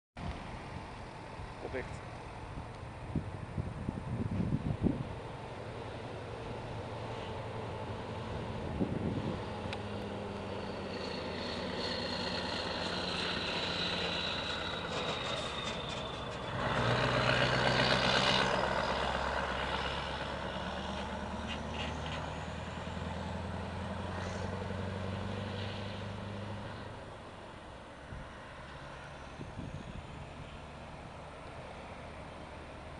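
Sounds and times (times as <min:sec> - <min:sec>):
diesel truck engine droning: 0:00.2 - 0:32.9.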